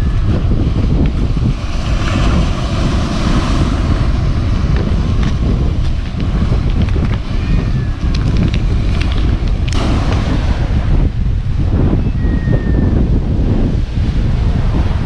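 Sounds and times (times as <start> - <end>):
wind buffeting the microphone: 0.0 - 15.0.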